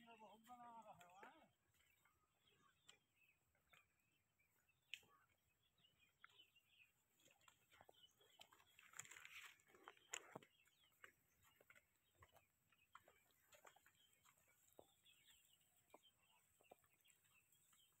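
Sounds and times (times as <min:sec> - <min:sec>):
small clicks and rustles: 0:07.2 - 0:14.8.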